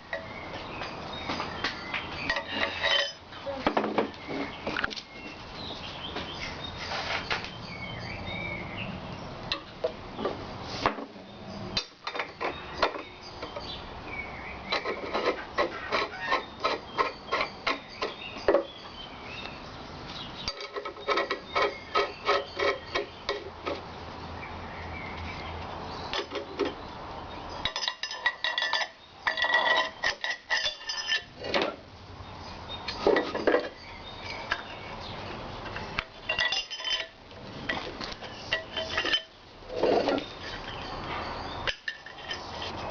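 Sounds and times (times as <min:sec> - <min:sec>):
iron vise parts clinking: 0:01.8 - 0:03.3, 0:20.4 - 0:23.8, 0:27.6 - 0:31.8, 0:35.6 - 0:42.9.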